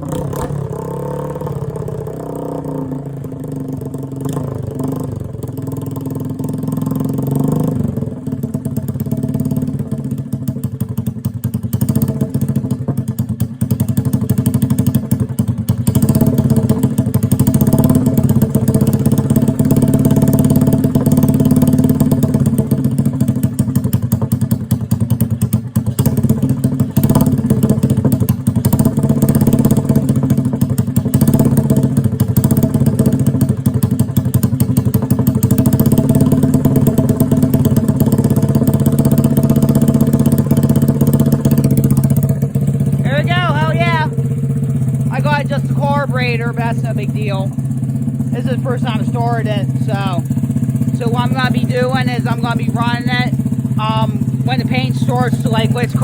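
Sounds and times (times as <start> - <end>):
single-cylinder engine running: 0.0 - 56.0.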